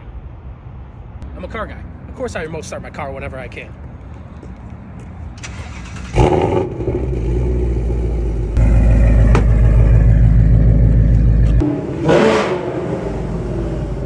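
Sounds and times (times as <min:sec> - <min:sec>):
car engine starting and idling: 0:05.3 - 0:14.0.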